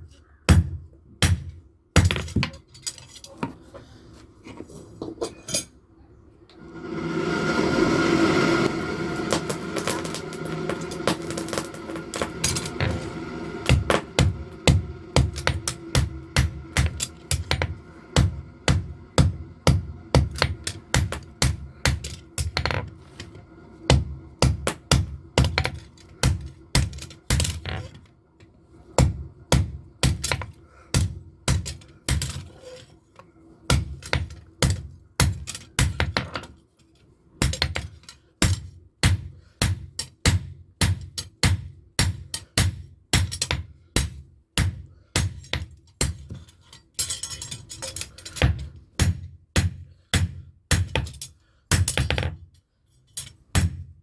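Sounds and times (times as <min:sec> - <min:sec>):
hammer striking metal on anvil: 0:09.2 - 0:22.8, 0:23.9 - 0:27.6, 0:29.0 - 0:32.4, 0:33.7 - 0:36.2.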